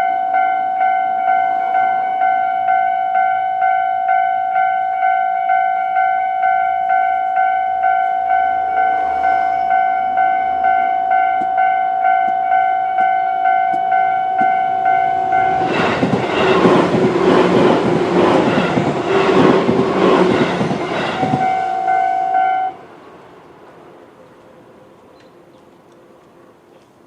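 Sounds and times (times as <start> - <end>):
level crossing alarm ringing: 0.0 - 22.8
train wheels clattering over rail joints: 15.3 - 21.6.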